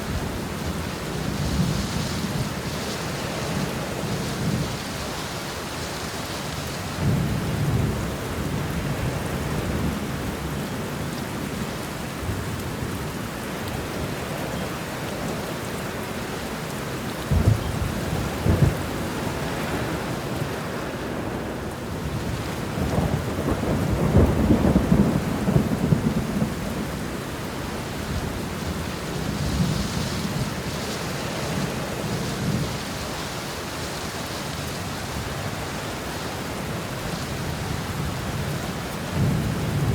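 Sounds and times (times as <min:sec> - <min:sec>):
steady rain: 0:00.0 - 0:39.9
thunder rumble: 0:17.2 - 0:33.4, 0:37.3 - 0:39.9
thunder cracks: 0:17.3 - 0:21.4.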